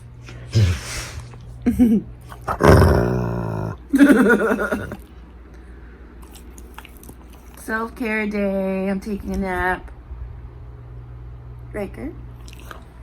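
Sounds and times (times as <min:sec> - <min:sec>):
animal growling: 0:00.5 - 0:01.3, 0:02.3 - 0:05.0.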